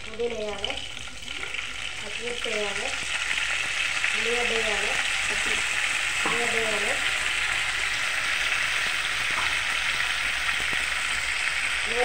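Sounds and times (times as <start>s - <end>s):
onions frying in hot oil: 0.0s - 12.0s.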